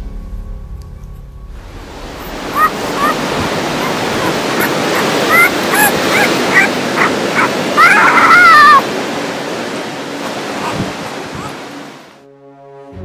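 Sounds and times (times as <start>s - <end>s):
puppy whining cry: 2.3s - 8.8s
puppy squeaking: 2.5s - 7.5s.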